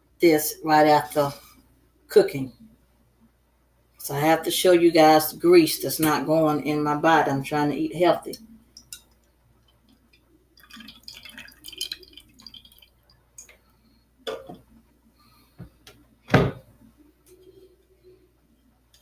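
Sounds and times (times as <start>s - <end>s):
dripping liquid: 8.3s - 13.7s.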